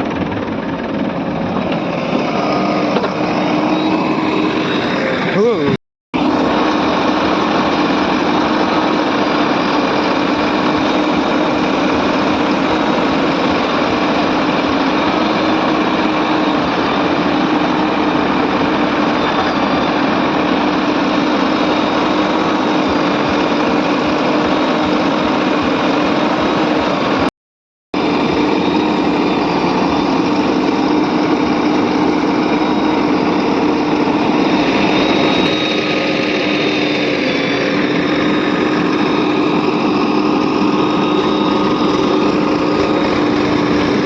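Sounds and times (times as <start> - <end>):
diesel engine running: 0.0 - 27.3, 28.0 - 44.0.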